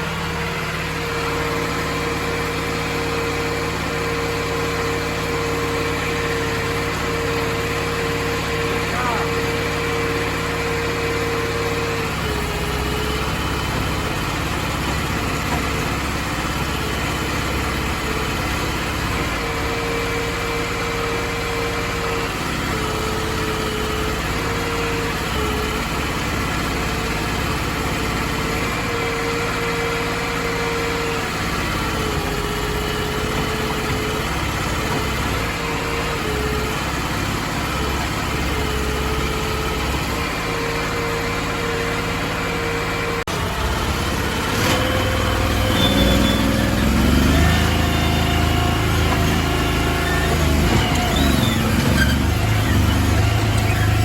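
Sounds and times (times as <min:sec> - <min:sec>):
boat engine running: 0:31.2 - 0:54.0.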